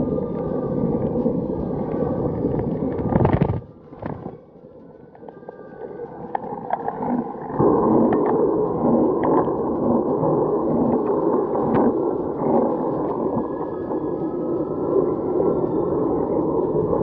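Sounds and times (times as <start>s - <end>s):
sharp ticks: 5.0s - 17.0s.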